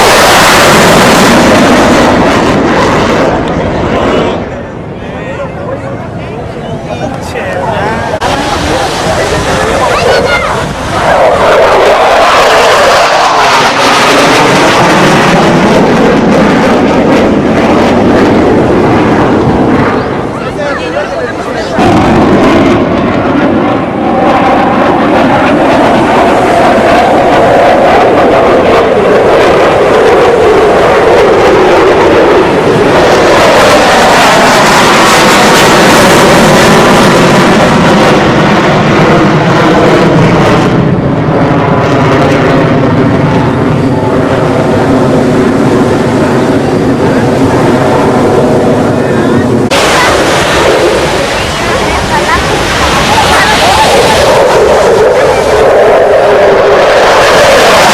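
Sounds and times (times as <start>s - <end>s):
jet passing low: 0.0s - 57.9s.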